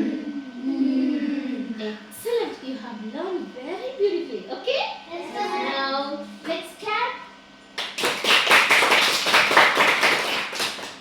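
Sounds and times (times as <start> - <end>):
children's voices: 5.1 - 7.2
children clapping: 7.8 - 11.0.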